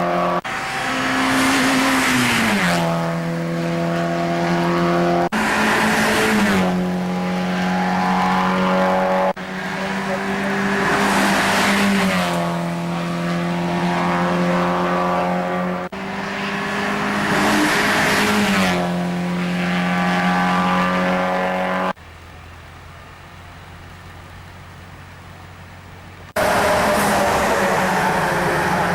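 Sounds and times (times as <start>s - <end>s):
race cars passing by: 0.0s - 22.0s, 26.3s - 28.9s.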